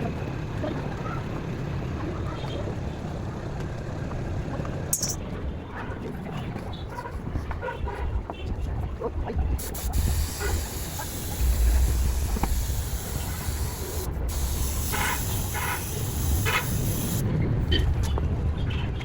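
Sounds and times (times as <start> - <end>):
spraying hiss: 9.6 - 17.2.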